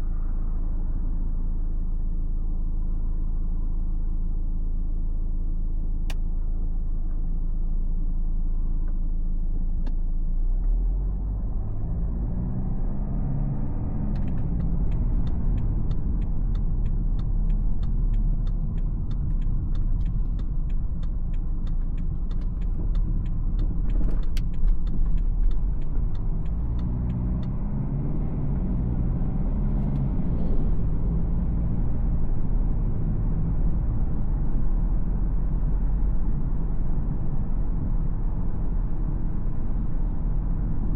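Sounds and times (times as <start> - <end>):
road rumble: 0.0 - 40.9
car engine accelerating: 9.9 - 40.9.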